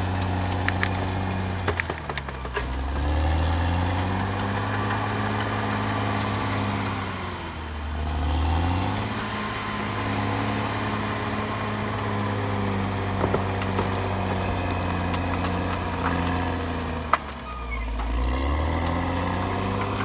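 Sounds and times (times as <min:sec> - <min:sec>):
bulldozer diesel engine running: 0:00.0 - 0:20.0
metal clanks: 0:00.6 - 0:06.9.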